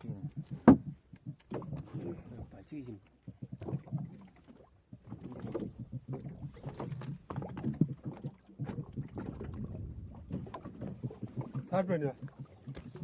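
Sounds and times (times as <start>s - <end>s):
knocks and clatter on a boat: 0.0s - 13.0s.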